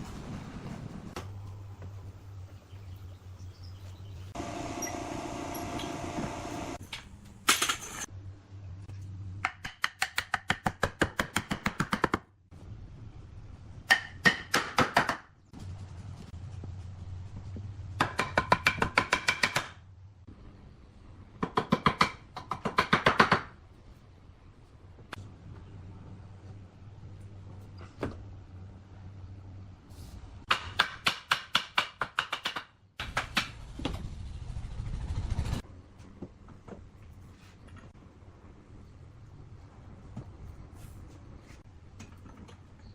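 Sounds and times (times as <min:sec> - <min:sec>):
machine whirring: 0:04.4 - 0:06.8.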